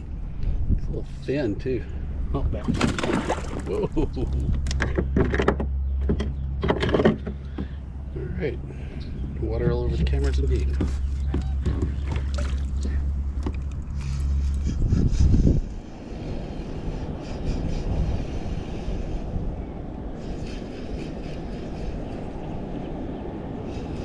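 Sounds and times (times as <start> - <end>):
steady low hum: 0.0 - 24.0
wind rumbling on microphone: 0.0 - 24.0
water lapping around kayak: 2.7 - 4.5, 9.7 - 14.7.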